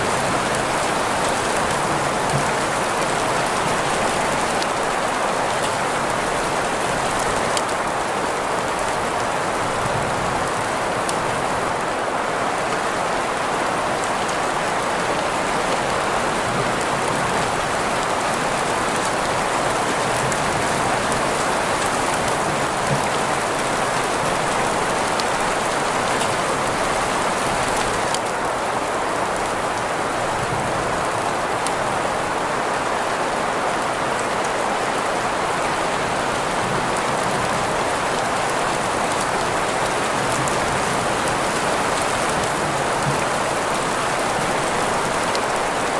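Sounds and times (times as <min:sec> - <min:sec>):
patter of raindrops: 0:00.0 - 0:45.9
steady rain hiss: 0:00.0 - 0:45.9.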